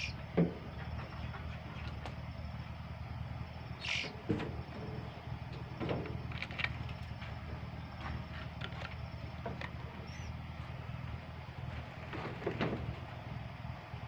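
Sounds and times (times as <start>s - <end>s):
steady low hum: 0.0s - 14.0s
high bird chirps: 3.8s - 4.2s.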